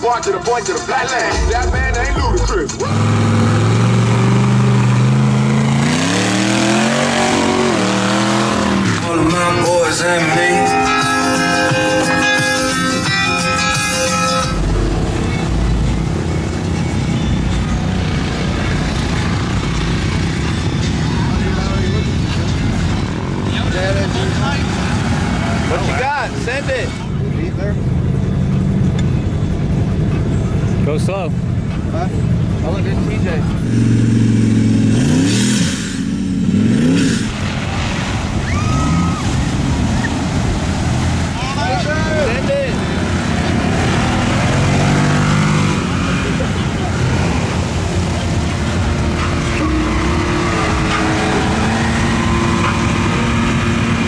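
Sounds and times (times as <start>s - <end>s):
truck engine rumbling: 0.0s - 54.0s
guitar music: 6.8s - 21.0s.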